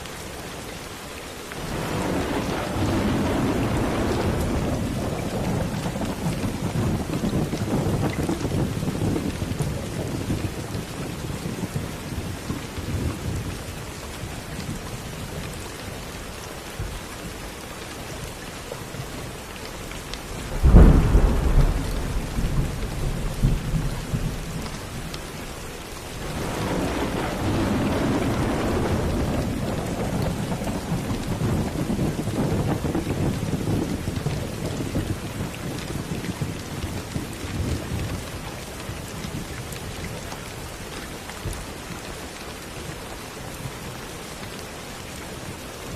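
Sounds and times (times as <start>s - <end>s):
steady rain: 0.0s - 45.9s
sharp loud thunderclap: 1.6s - 9.4s, 20.5s - 25.0s, 26.2s - 35.5s
thunder rumbling: 1.6s - 13.5s, 20.3s - 38.4s.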